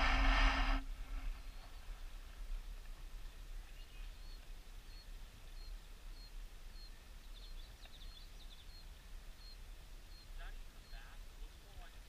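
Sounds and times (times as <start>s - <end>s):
steady low rumble: 0.0s - 7.3s
small bird chirping: 1.2s - 2.0s, 3.6s - 11.9s.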